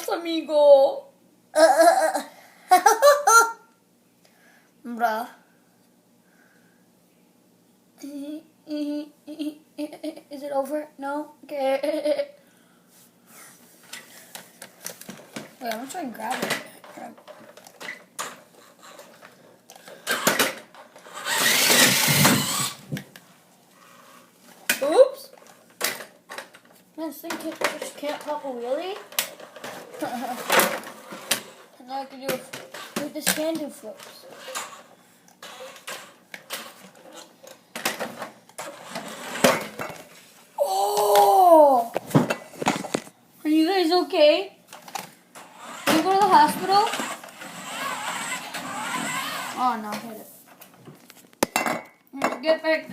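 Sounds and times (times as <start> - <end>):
toy car motor whirring: 19.8 - 22.8, 34.0 - 37.3, 38.6 - 39.6, 45.4 - 49.9.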